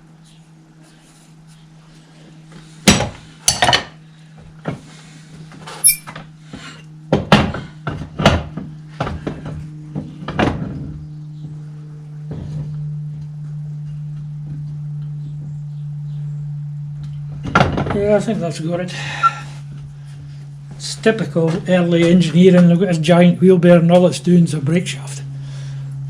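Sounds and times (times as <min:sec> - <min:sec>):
steady low hum: 0:00.0 - 0:26.0
high metallic ring: 0:05.7 - 0:06.2.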